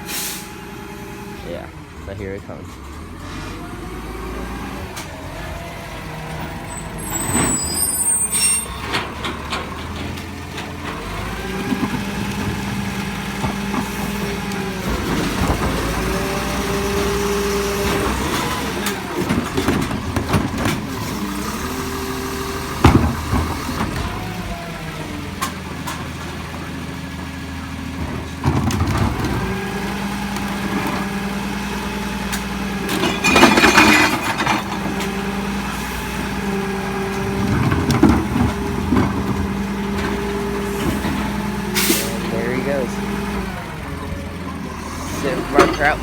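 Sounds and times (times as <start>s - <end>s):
diesel engine running: 0.0s - 46.0s
recyclables clattering into hopper: 32.4s - 35.6s.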